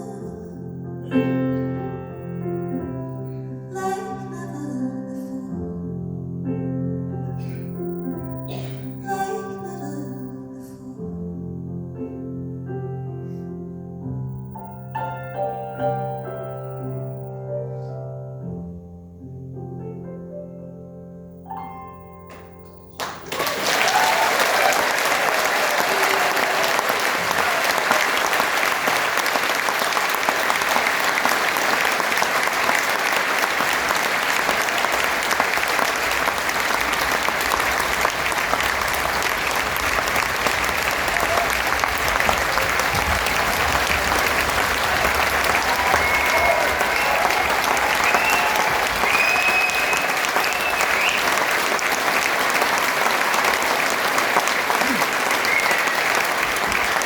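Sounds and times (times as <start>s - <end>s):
audience applause: 22.8s - 57.0s.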